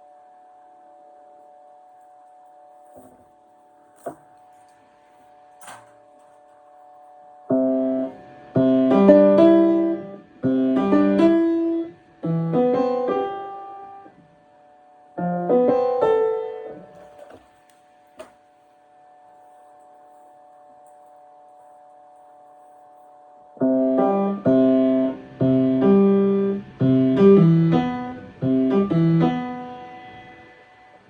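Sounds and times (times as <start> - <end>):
piano chords and melody: 7.5 - 14.2, 15.2 - 18.3, 23.5 - 31.0.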